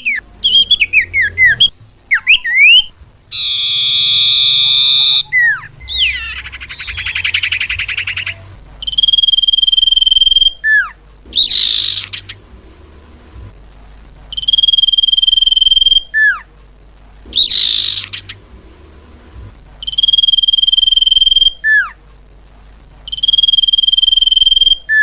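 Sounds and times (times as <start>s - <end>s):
steady high bird whistle: 0.0s - 12.4s, 14.3s - 16.5s, 17.3s - 18.4s, 19.8s - 22.0s, 23.1s - 25.0s
sweeping bird whistles: 0.0s - 12.4s, 14.3s - 16.5s, 17.3s - 18.4s, 19.8s - 22.0s, 23.1s - 25.0s
fast bird trill: 0.0s - 12.5s, 14.3s - 16.4s, 17.3s - 18.4s, 19.8s - 22.0s, 23.1s - 25.0s
buzzy bird note: 0.0s - 13.6s, 14.2s - 16.5s, 17.2s - 22.0s, 23.1s - 25.0s.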